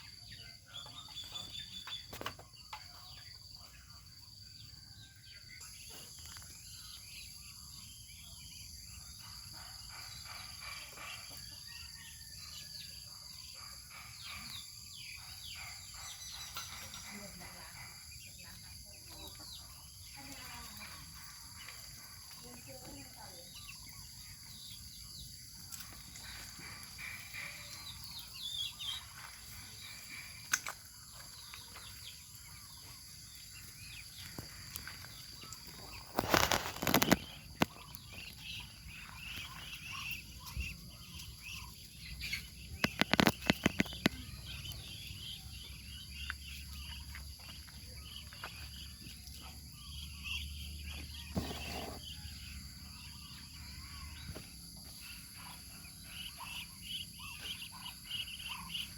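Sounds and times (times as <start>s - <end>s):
insect chorus: 0.0s - 58.9s
faint bird chirps: 13.3s - 58.9s.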